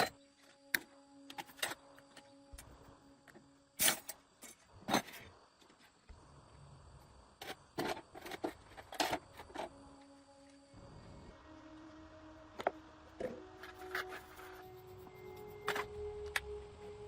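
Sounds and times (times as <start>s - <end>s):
metal tools clinking and scraping: 3.8s - 5.3s.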